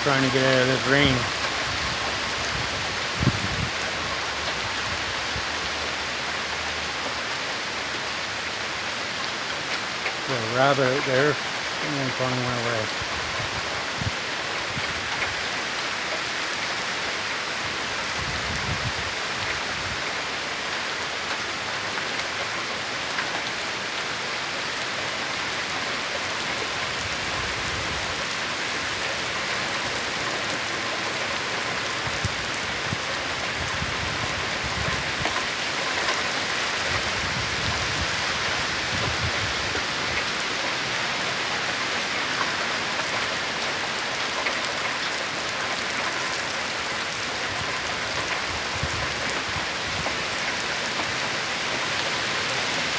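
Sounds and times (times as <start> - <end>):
rumbling wind gusts: 0.0 - 5.5, 10.3 - 15.5, 17.6 - 20.1, 31.9 - 35.6, 36.4 - 40.3
torrential rain pouring: 0.0 - 52.9.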